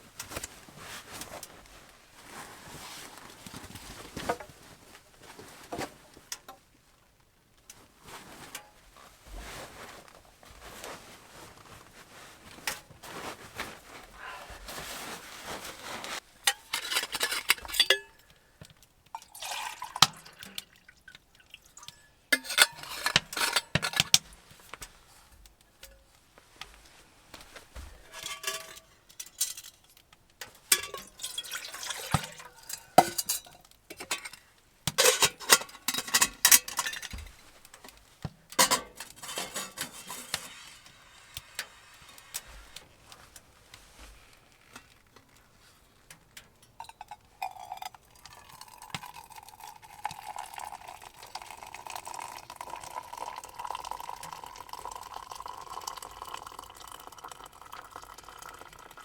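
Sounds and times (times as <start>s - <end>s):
dishes clinking: 16.5s - 18.4s, 21.8s - 24.2s, 27.9s - 29.8s, 30.7s - 37.9s, 38.5s - 41.7s
liquid pouring: 19.1s - 22.0s, 30.7s - 33.4s, 46.8s - 59.0s.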